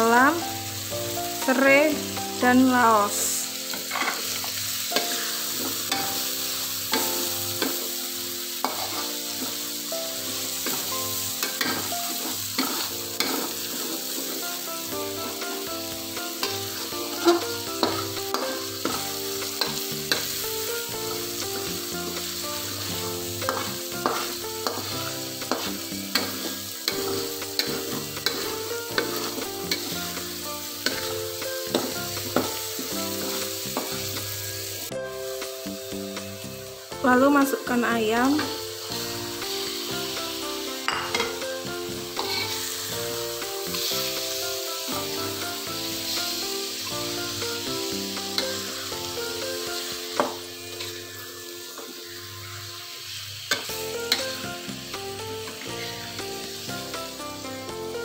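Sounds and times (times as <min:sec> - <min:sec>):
spice paste sizzling in oil: 0:00.0 - 0:58.0
metal spatula scraping wok: 0:03.2 - 0:34.8, 0:42.0 - 0:44.3, 0:45.0 - 0:56.6.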